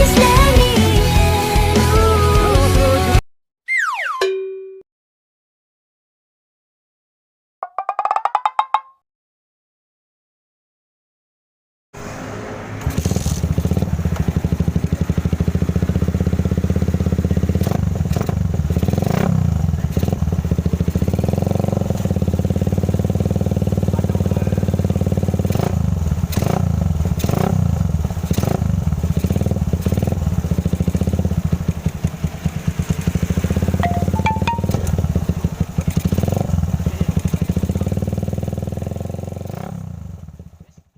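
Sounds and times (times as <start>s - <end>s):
motorcycle engine pulsing exhaust: 12.9s - 40.8s
engine throttle blips: 29.2s - 39.1s.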